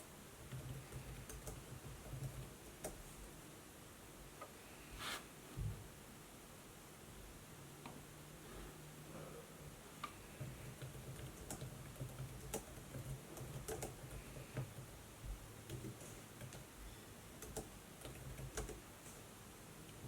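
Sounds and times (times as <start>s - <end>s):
laptop keys clicking: 10.7s - 14.9s, 17.4s - 18.8s.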